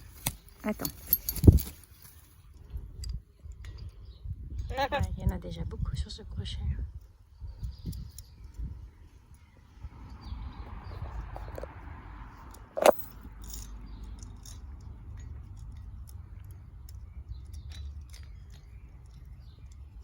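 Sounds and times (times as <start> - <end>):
metallic clinks and rattles: 0.0 - 4.0, 12.4 - 20.0.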